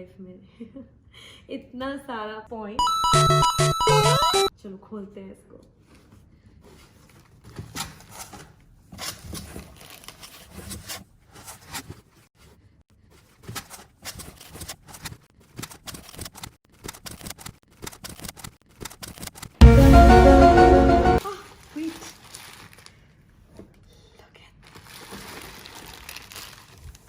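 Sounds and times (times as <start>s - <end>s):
packaging rustling and tearing: 7.1s - 12.0s, 21.5s - 23.1s, 24.6s - 27.0s
loud burst of music: 19.6s - 21.2s.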